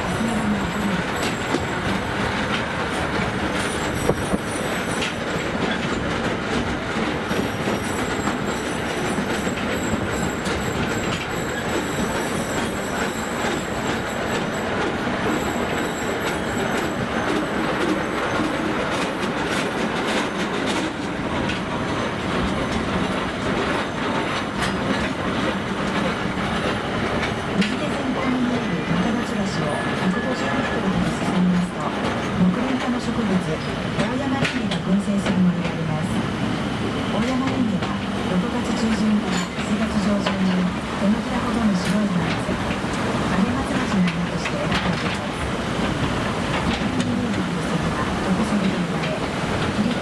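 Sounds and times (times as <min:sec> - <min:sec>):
rail clicks: 0:00.0 - 0:50.0
train wheels rumbling on rail: 0:00.0 - 0:50.0
high wheel squeal: 0:07.2 - 0:20.5.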